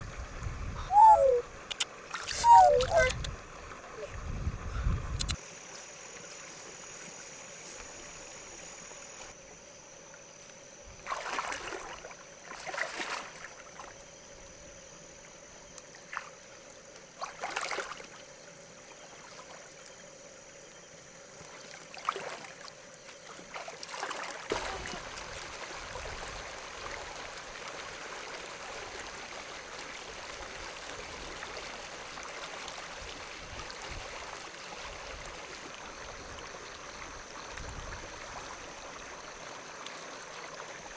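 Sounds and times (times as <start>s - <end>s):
water splashing: 0.9s - 4.1s, 11.0s - 14.0s, 23.3s - 40.9s
running water rushing: 0.9s - 4.4s, 21.7s - 40.9s.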